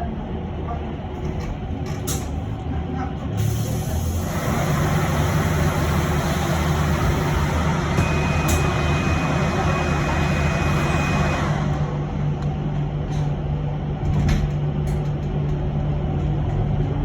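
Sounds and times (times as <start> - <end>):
bus low steady drone: 0.0 - 17.0.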